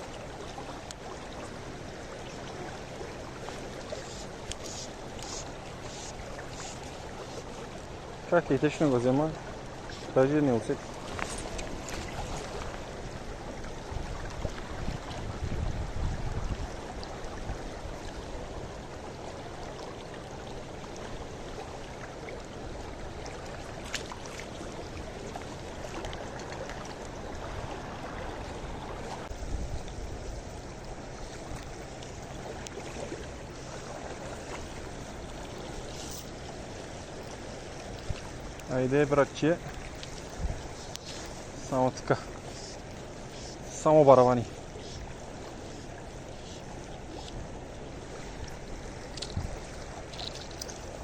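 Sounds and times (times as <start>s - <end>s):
river water flowing: 0.0s - 51.0s.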